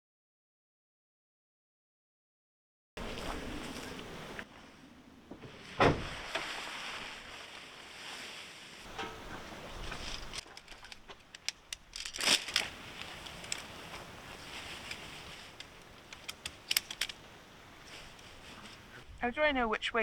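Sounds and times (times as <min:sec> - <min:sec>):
tent fabric rustling: 0:03.0 - 0:20.0
tent poles clicking and knocking: 0:05.2 - 0:19.1.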